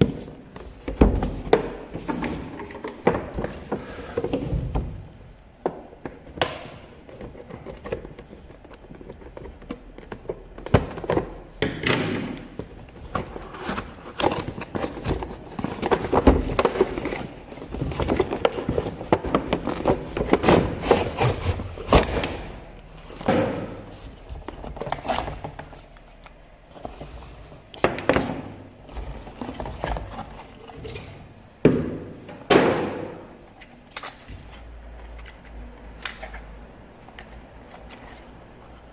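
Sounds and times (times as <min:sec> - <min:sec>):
hands handling packaging: 0:12.4 - 0:31.4.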